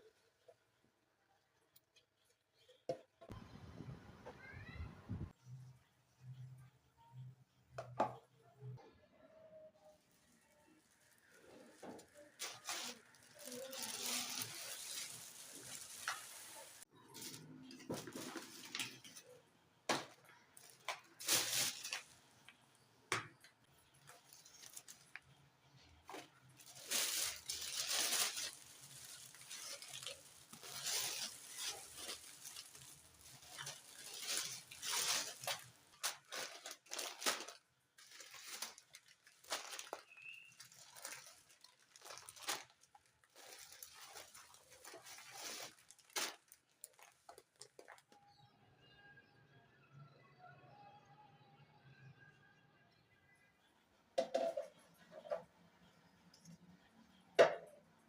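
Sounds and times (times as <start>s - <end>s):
packets rustling and tearing: 10.8s - 19.2s, 20.0s - 22.3s, 24.0s - 25.4s, 26.1s - 48.1s
containers and kitchenware clinking: 11.3s - 48.2s, 54.2s - 56.6s.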